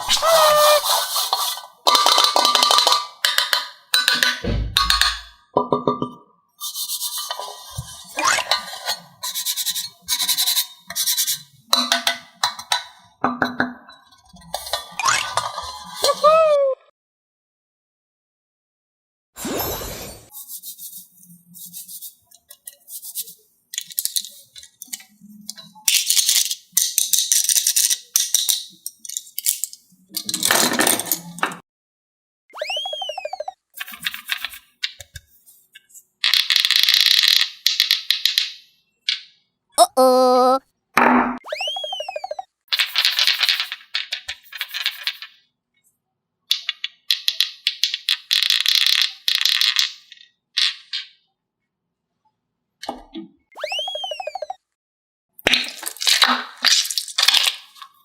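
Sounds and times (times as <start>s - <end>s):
electronic tone rising and falling: 53.6s - 54.6s
small hard objects clattering: 55.5s - 58.0s.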